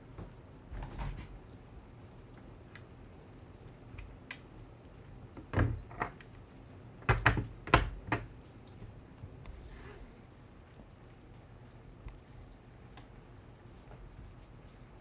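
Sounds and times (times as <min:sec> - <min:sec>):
faint steady background noise: 0:00.0 - 0:15.0.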